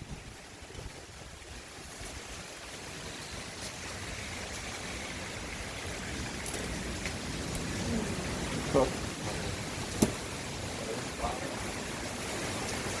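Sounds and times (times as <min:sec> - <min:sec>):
heavy rain hissing: 0:00.0 - 0:13.0
sharp raindrop ticks: 0:06.4 - 0:07.8.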